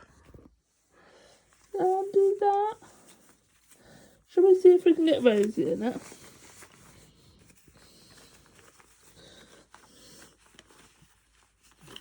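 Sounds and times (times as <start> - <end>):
fabric rustling and small clicks: 5.0 - 12.0.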